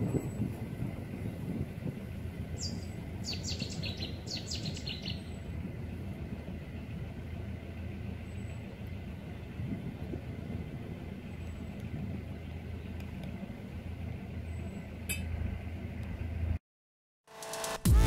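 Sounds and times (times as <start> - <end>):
boat engine rumbling: 0.0 - 16.6
music: 17.3 - 18.0.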